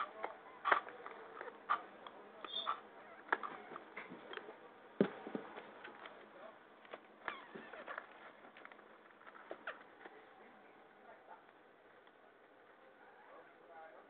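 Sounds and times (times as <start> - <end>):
parrot chicks squeaky calls: 2.5 - 3.8.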